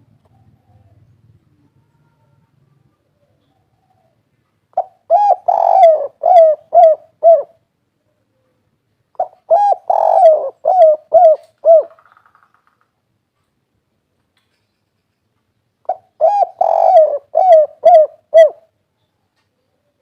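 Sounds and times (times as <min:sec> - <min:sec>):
dove cooing: 0:03.1 - 0:07.6, 0:09.2 - 0:12.1, 0:15.8 - 0:18.7.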